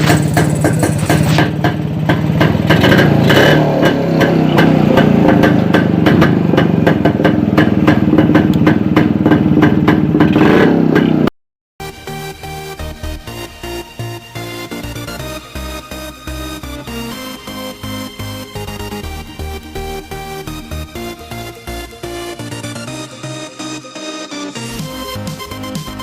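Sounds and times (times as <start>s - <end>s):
motorcycle engine running: 0.0s - 11.3s, 12.8s - 23.4s.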